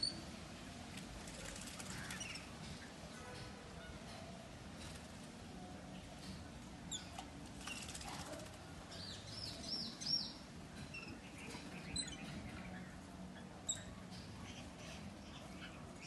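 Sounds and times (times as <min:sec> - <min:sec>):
small birds chirping: 0:06.2 - 0:16.0.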